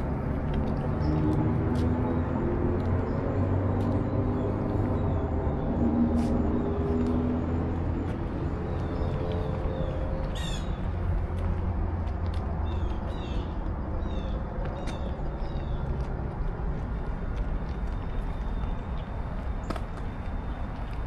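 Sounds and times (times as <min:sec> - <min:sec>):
steady low rumble: 0:00.0 - 0:21.0
small birds chirping: 0:08.1 - 0:11.2.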